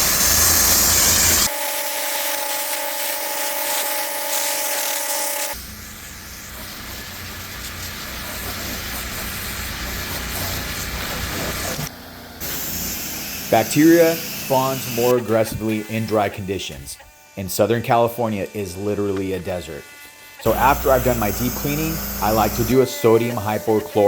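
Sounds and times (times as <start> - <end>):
pressure washer spraying: 2.2 - 16.4, 20.5 - 24.0
machine whine: 20.4 - 24.0.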